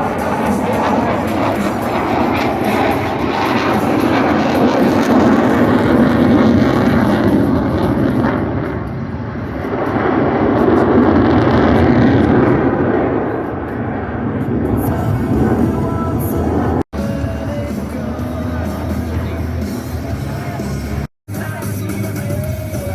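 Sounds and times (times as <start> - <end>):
airplane flying past: 0.0 - 16.8.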